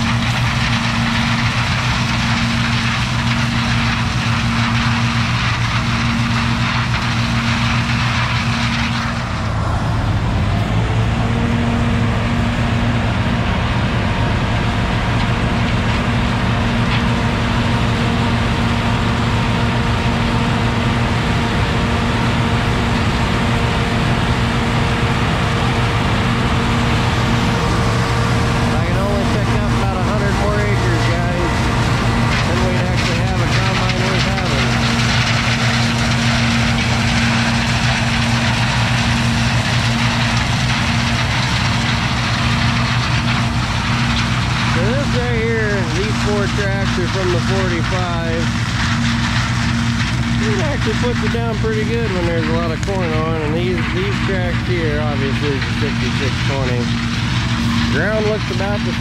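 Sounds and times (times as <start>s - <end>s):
combine engine running: 0.0s - 59.0s.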